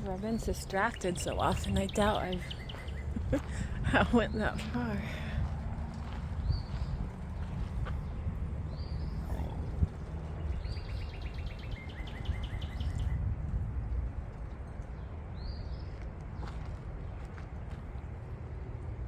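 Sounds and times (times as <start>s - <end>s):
birds calling: 0.0s - 13.2s
steady low rumble: 0.0s - 19.0s
bird trill: 0.4s - 3.3s, 10.4s - 13.2s.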